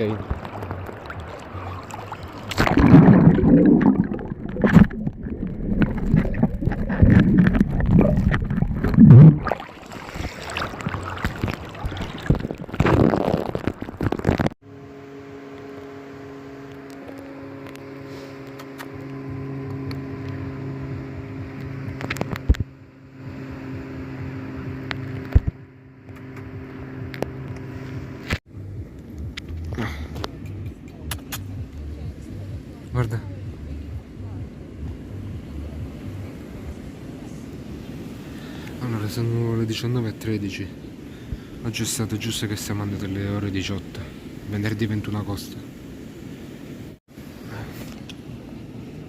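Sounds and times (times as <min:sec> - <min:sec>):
wind and sea water rushing: 0:00.0 - 0:14.6, 0:26.8 - 0:49.0
engine hum: 0:00.0 - 0:38.8.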